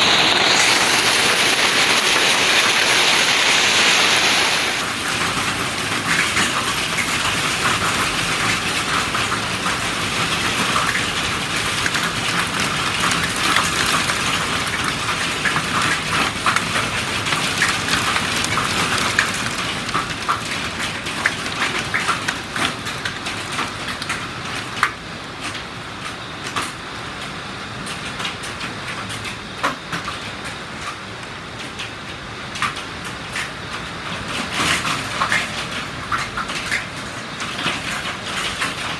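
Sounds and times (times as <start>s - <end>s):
hailstones striking hard surfaces: 0.0s - 24.2s
heavy rain hiss: 0.0s - 38.9s.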